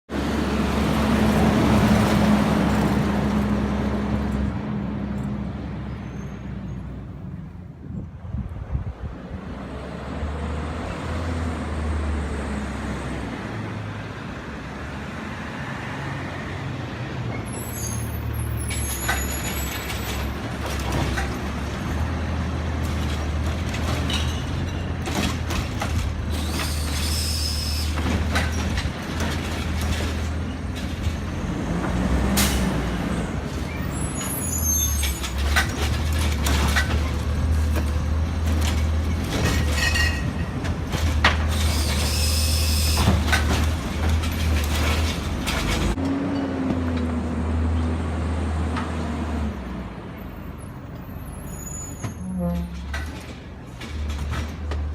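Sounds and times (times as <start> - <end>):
knocks and clanks: 19.0 - 21.7, 22.8 - 27.1, 35.0 - 42.1, 43.0 - 47.1
high squeals: 26.4 - 28.0, 41.6 - 43.1.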